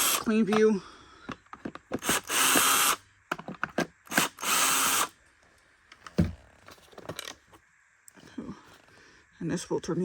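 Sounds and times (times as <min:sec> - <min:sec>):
cordless drill whirring: 0:00.0 - 0:00.3, 0:01.9 - 0:03.0, 0:04.1 - 0:05.1.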